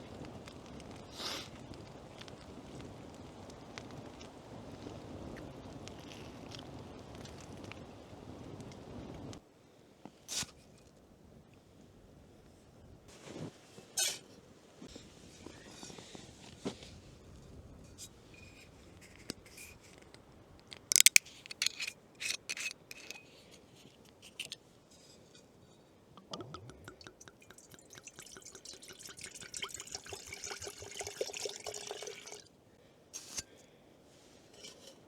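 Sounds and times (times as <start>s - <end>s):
cookware clinking: 26.2s - 32.4s
liquid pouring into cup: 26.2s - 32.5s.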